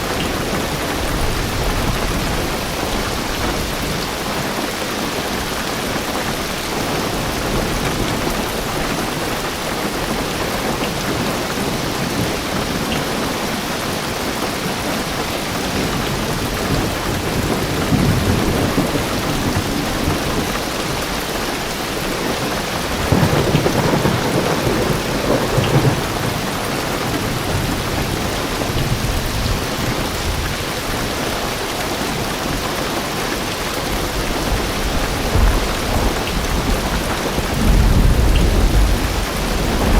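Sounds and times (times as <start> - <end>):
heavy rain on car roof: 0.0 - 39.9
thunder rumbling: 5.2 - 31.4, 33.9 - 39.9.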